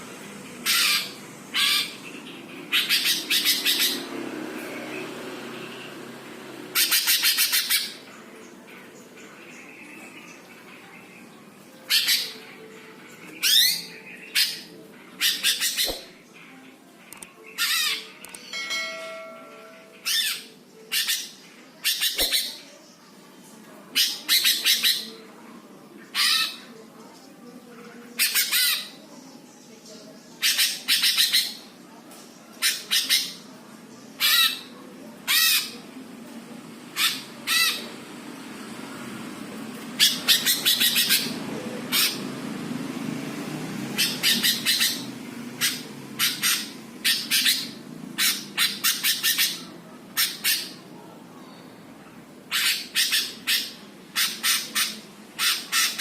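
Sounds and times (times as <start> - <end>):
bird giving harsh scolding calls: 0.6 - 2.0, 2.7 - 4.1, 37.0 - 37.8, 44.0 - 49.6, 50.2 - 50.8, 52.5 - 56.0.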